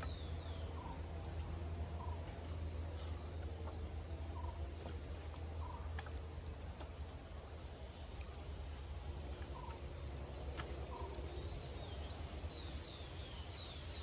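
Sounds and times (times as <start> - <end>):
bird chirping: 0.0 - 6.3, 9.3 - 14.0
high insect drone: 0.0 - 14.0.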